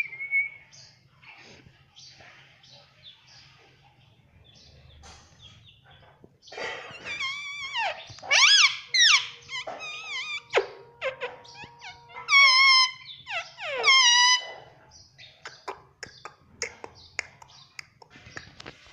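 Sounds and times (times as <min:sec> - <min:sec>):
parrot calling: 0:06.5 - 0:14.7.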